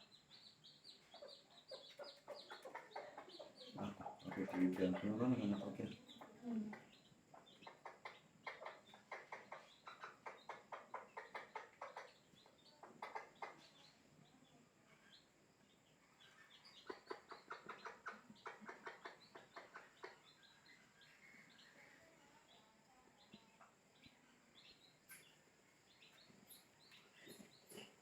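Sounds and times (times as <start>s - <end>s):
hen clucking: 0.0s - 14.1s, 16.2s - 22.0s.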